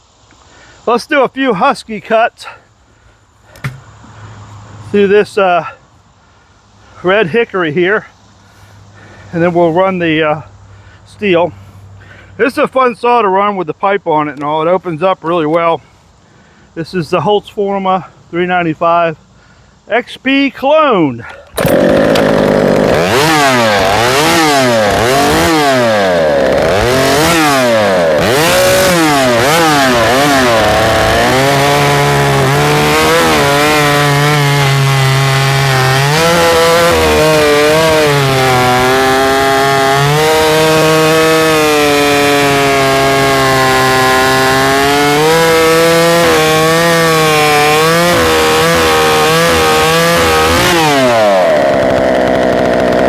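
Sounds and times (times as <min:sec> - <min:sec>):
chainsaw revving and cutting log: 0:21.4 - 0:53.0.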